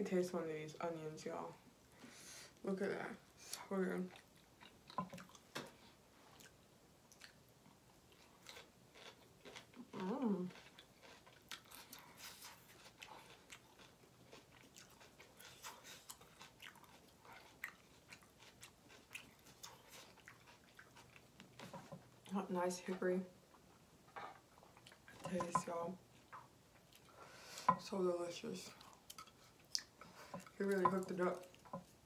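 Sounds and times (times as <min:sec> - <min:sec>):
crunchy chewing: 0:08.1 - 0:22.3.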